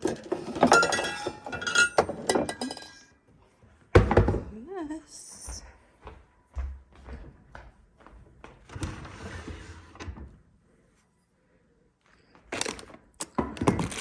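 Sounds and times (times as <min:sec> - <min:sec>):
dishes clattering: 0:00.0 - 0:03.1
dish sliding and scraping: 0:08.8 - 0:10.2.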